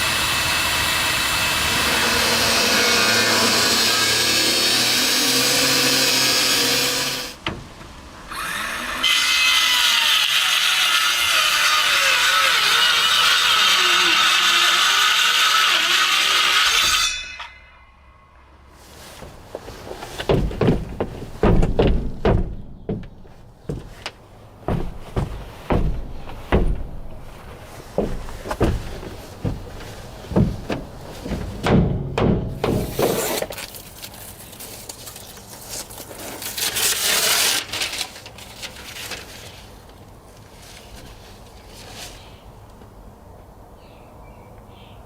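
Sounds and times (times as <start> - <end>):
knocks and thuds on wood: 19.2 - 33.2.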